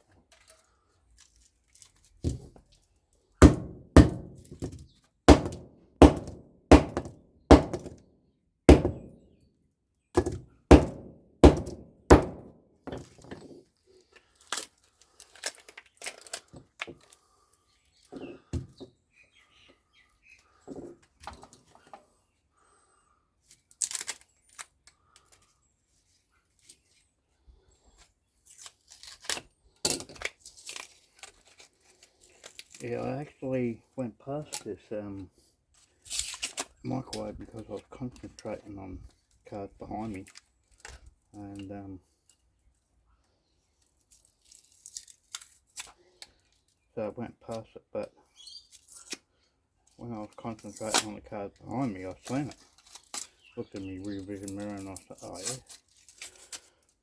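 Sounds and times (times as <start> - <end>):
heavy knocks on metal transformer: 3.4 - 4.4, 5.3 - 8.0, 8.7 - 9.1, 10.7 - 12.5.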